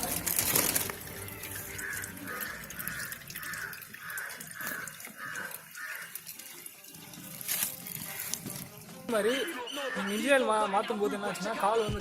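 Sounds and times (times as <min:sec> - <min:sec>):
oil glugging into a pan: 0:00.0 - 0:09.2.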